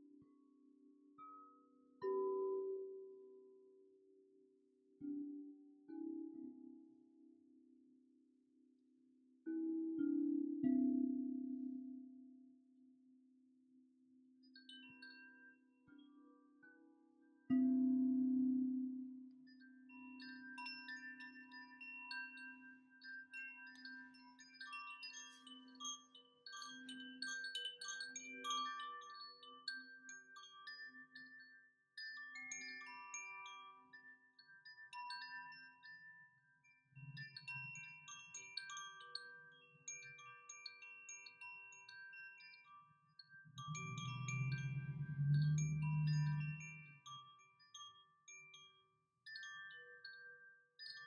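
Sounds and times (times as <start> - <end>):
wind chimes ringing: 37.0 - 51.0
low ringing tone: 43.5 - 47.4
low swell: 43.6 - 46.9.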